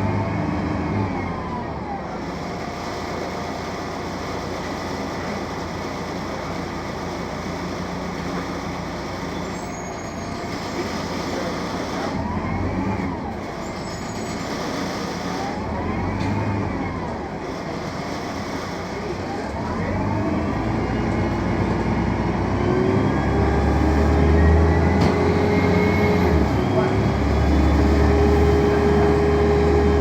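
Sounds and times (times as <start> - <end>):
bus diesel engine drone: 0.0 - 30.0
faint high squeaks: 9.4 - 10.6, 13.6 - 14.6.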